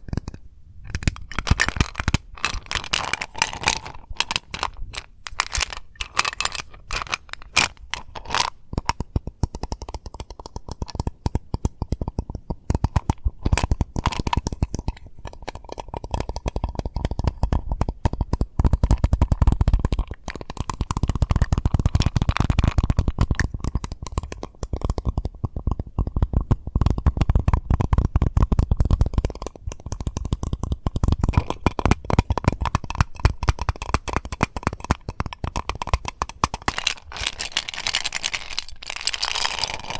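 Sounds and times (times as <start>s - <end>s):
rapid tapping on mint container: 0.0s - 39.9s.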